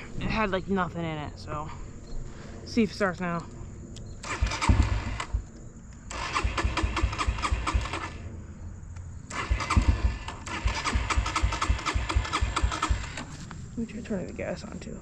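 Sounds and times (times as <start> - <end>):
engine cranking by starter: 4.2 - 5.5, 6.1 - 8.3, 9.3 - 13.5.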